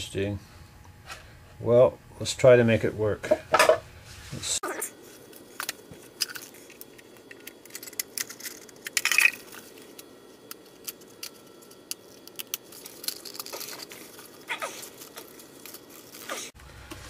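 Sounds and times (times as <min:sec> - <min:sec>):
parts clattering: 0:05.3 - 0:16.6.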